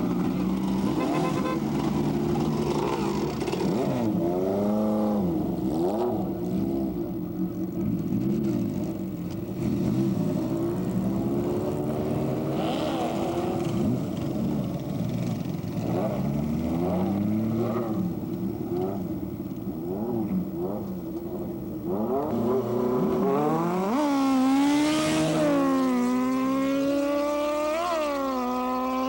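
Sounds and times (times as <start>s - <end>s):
motorcycle engines revving: 0.0s - 29.0s.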